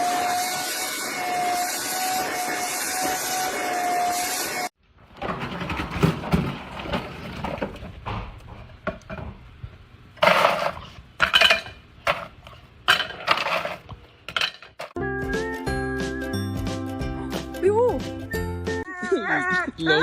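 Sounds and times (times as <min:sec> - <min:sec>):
hard objects clattering: 0:10.2 - 0:15.0.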